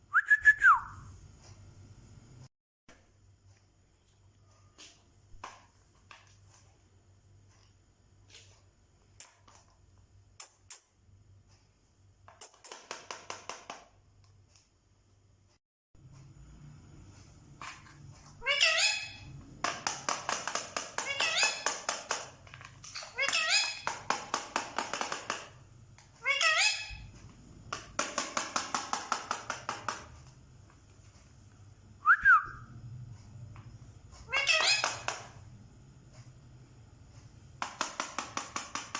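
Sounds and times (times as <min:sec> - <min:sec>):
parrot high squeak: 0:18.4 - 0:19.3, 0:21.0 - 0:21.7, 0:23.0 - 0:23.9, 0:26.2 - 0:27.0, 0:34.3 - 0:35.0.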